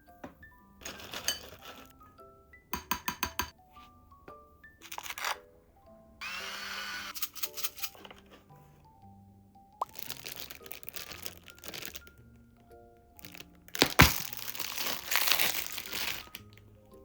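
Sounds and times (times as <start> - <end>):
soft background music: 0.0 - 17.0
crinkling and rustling: 0.8 - 2.0, 4.8 - 5.4, 7.2 - 8.8, 9.8 - 12.2, 13.2 - 16.7.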